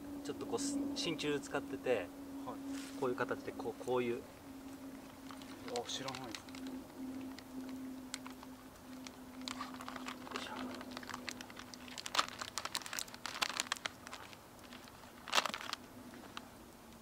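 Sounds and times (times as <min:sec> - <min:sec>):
plastic package crinkling: 0:05.1 - 0:16.5.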